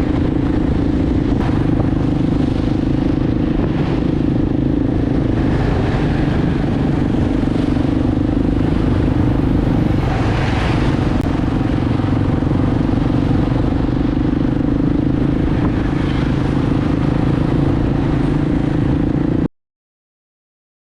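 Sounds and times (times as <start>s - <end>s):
motorbike engine running: 0.0s - 19.5s.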